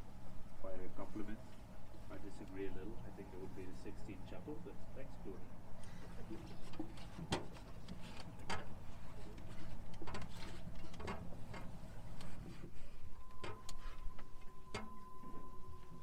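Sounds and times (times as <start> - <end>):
boat motor hum: 0.0 - 16.0
thin steady tone: 12.1 - 16.0.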